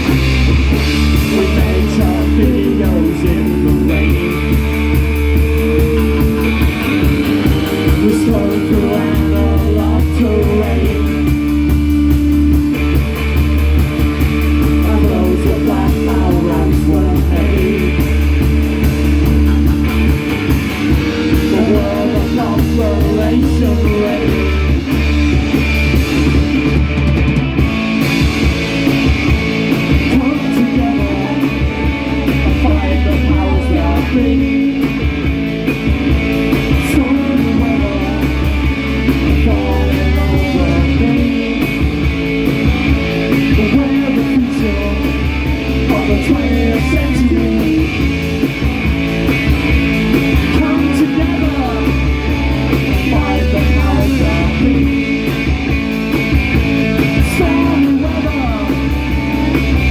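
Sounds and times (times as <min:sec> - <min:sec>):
drum kit: 0:00.0 - 0:59.9
electric guitars: 0:00.0 - 0:59.9.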